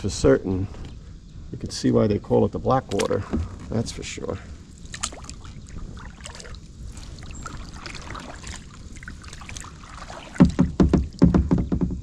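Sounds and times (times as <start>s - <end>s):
paddles dipping into water: 4.6s - 11.6s
water dripping and trickling: 4.6s - 11.6s.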